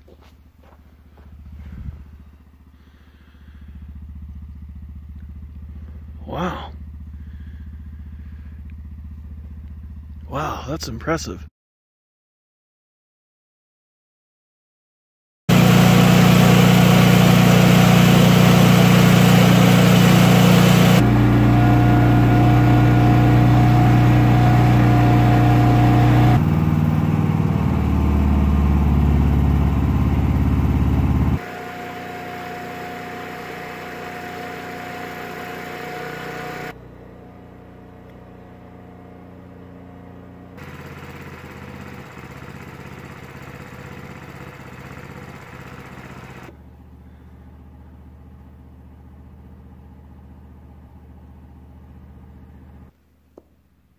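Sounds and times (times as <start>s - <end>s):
portable generator engine running: 0.0s - 10.8s, 15.5s - 52.9s.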